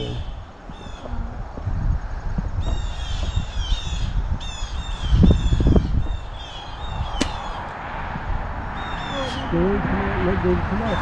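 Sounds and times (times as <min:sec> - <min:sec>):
low rumble: 0:00.0 - 0:04.9
sharp click: 0:07.2 - 0:07.6.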